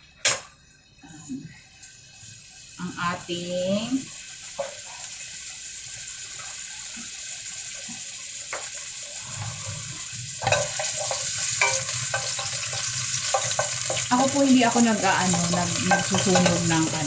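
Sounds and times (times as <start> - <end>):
garlic sizzling in oil: 1.7 - 17.0
utensil clicking against pan: 10.4 - 17.0.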